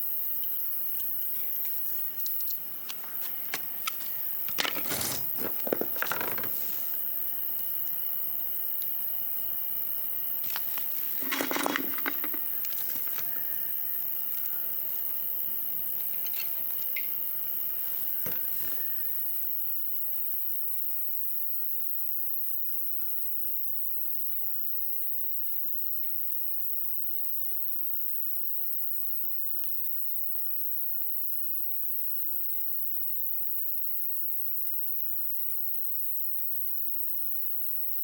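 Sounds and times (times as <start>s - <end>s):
campfire crackling: 2.8s - 18.7s
wood rustling and knocking: 4.5s - 6.8s, 10.5s - 13.1s.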